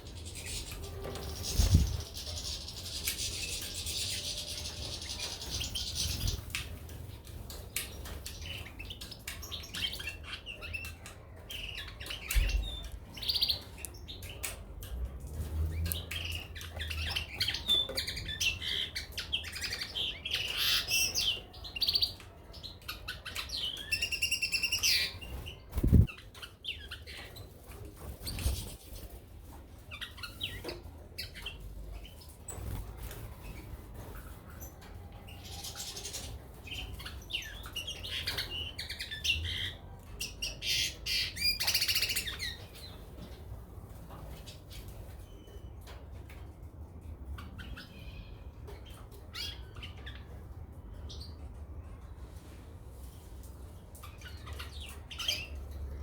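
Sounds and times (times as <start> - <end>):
birds chirping and twittering: 0.0 - 52.2, 53.2 - 56.0
wing flutters: 0.7 - 2.2, 25.7 - 26.2.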